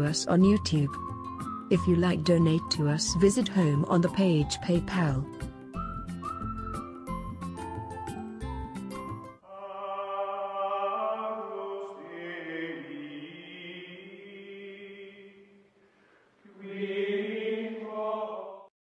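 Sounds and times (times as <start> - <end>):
choir-like background music: 9.4 - 15.5, 16.5 - 18.7.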